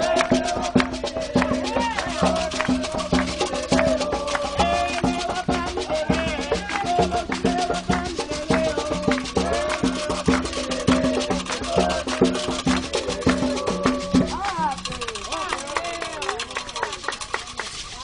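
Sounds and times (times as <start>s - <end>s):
voices singing: 0.0s - 16.3s
fast dense drumming: 0.0s - 18.0s
rattles: 14.0s - 18.0s.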